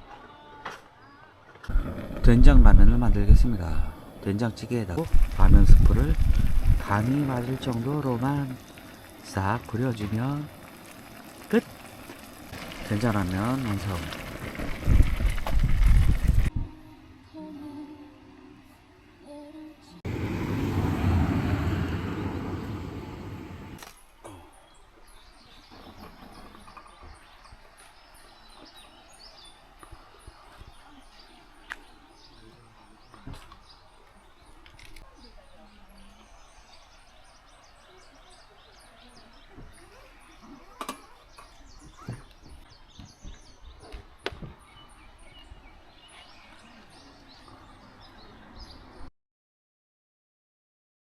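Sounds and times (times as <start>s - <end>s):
small birds chirping: 20.1s - 49.1s.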